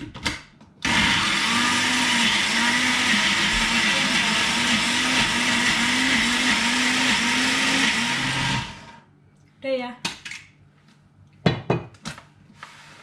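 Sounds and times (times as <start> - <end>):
electric blender running: 0.8 - 9.0.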